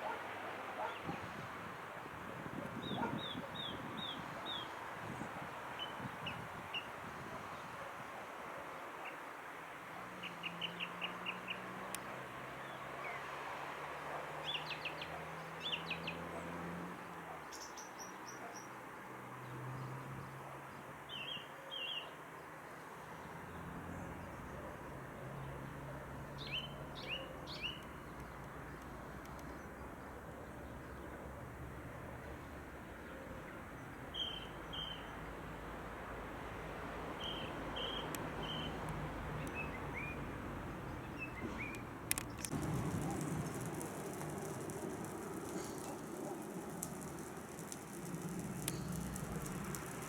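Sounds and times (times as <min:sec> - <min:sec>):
steady outdoor hiss: 0:00.0 - 0:50.0
small birds chirping: 0:26.4 - 0:31.1, 0:37.2 - 0:50.0.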